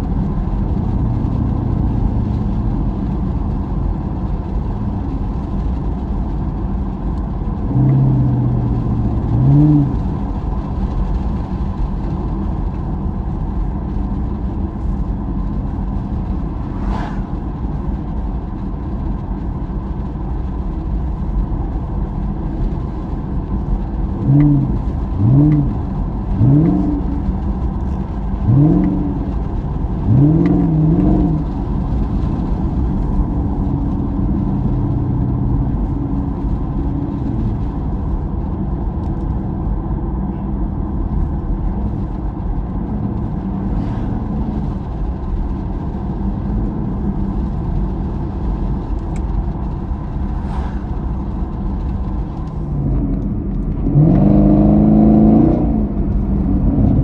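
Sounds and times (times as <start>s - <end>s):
engine and road noise drone: 0.0s - 57.0s
engine revving: 7.5s - 10.2s, 24.2s - 27.4s, 28.2s - 36.2s, 52.7s - 57.0s.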